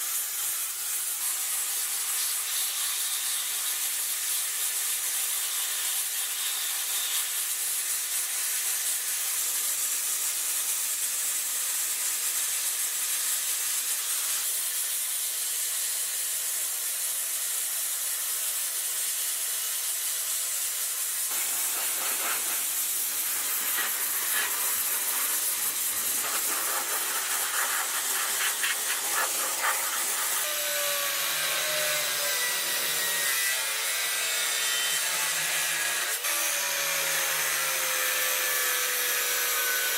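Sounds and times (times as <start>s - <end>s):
abrasive scraping on metal: 21.3s - 30.5s
quick rubbing strokes: 21.3s - 30.5s.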